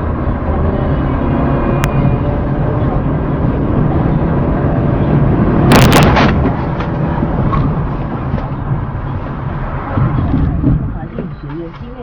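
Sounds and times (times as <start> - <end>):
vehicle rumble: 0.0 - 12.0
car crash bangs: 5.6 - 8.3.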